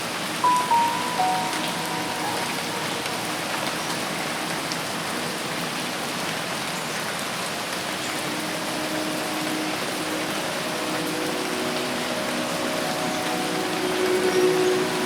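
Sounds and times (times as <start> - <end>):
rain on foliage: 0.0 - 15.0.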